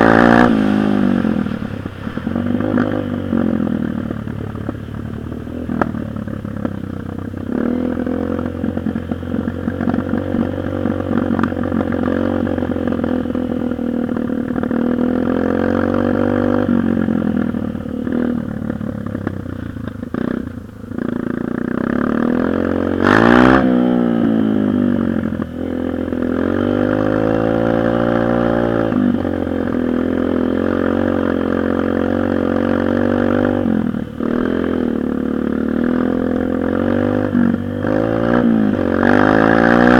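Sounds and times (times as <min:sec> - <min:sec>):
dirt bike engine revving: 0:00.0 - 0:04.8, 0:21.0 - 0:39.9.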